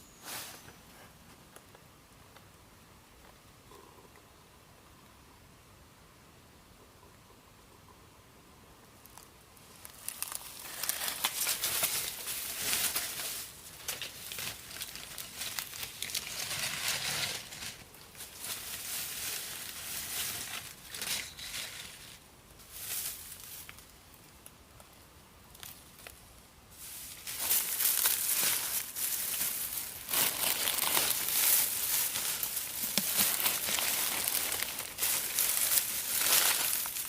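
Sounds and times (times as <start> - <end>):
dry material rustling: 9.8 - 23.8, 26.7 - 37.0.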